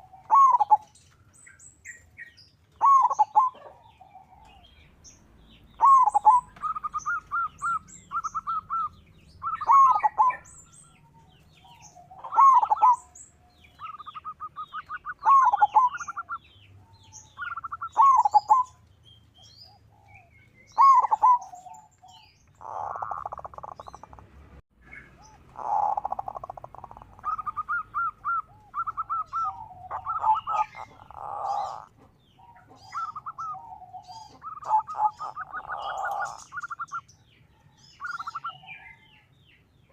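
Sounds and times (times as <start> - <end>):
dove cooing: 0.0 - 1.0, 1.9 - 18.8, 19.4 - 24.2, 24.9 - 39.2
small birds chirping: 0.0 - 39.9.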